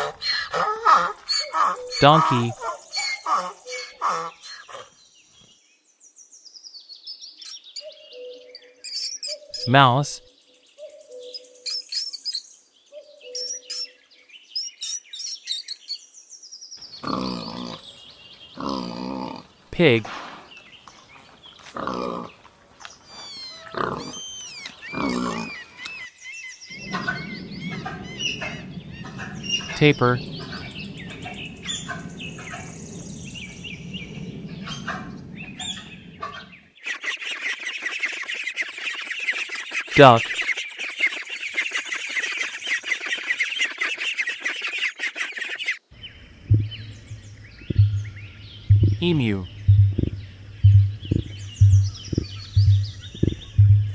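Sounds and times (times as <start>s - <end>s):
birds chirping faintly: 0.0s - 53.9s
pigs grunting: 17.0s - 17.9s, 18.6s - 19.5s, 21.7s - 22.4s, 23.7s - 24.2s, 24.9s - 25.6s
ducklings peeping: 34.7s - 53.9s
faint bird chirps: 35.5s - 53.9s
low rumbling thumps: 46.4s - 53.9s.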